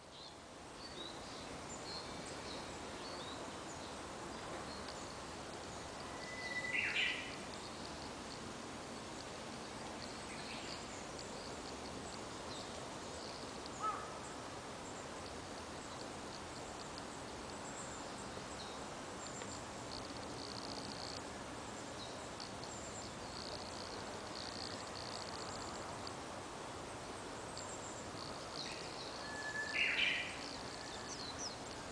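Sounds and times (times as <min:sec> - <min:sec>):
background hiss: 0:00.0 - 0:31.9
faint high bird chirps: 0:04.7 - 0:08.4, 0:27.5 - 0:31.9.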